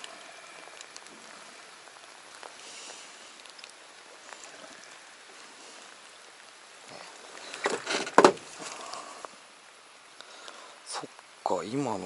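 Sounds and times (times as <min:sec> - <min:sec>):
faint ticks: 0:00.0 - 0:11.4
rain falling on water: 0:00.0 - 0:12.0.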